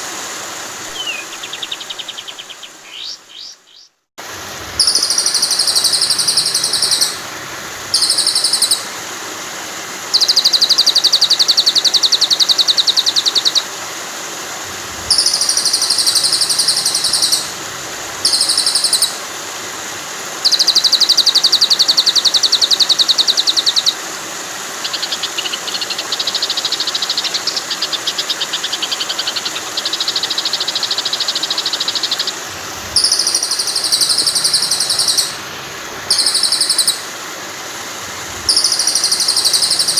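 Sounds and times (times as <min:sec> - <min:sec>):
flowing water hiss: 0:00.0 - 0:39.9
rapid buzzing bird trills: 0:00.8 - 0:04.0, 0:04.8 - 0:09.0, 0:10.1 - 0:13.7, 0:14.8 - 0:19.3, 0:20.4 - 0:24.1, 0:24.8 - 0:37.2, 0:38.3 - 0:39.9
short high bird call phrases: 0:00.9 - 0:04.0, 0:36.1 - 0:37.1, 0:38.4 - 0:39.9.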